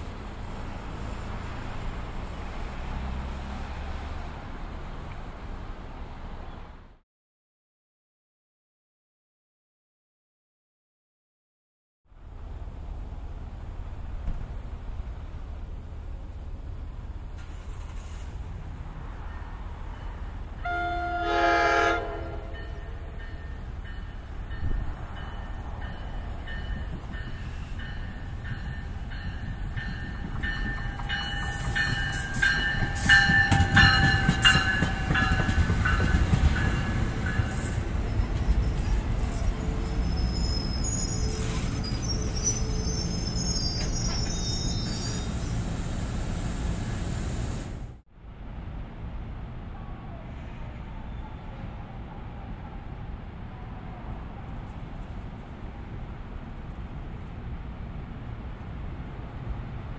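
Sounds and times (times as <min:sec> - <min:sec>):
passing train rumble: 0:00.0 - 0:07.0, 0:12.1 - 0:59.9
train horn blast: 0:20.6 - 0:23.2
train wheels squealing: 0:22.5 - 0:45.8.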